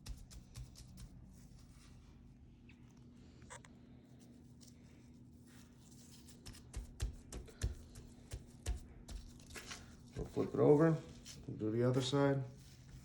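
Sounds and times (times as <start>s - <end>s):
faint steady hum: 0.0s - 13.0s
hand patting raw chicken: 6.3s - 10.5s.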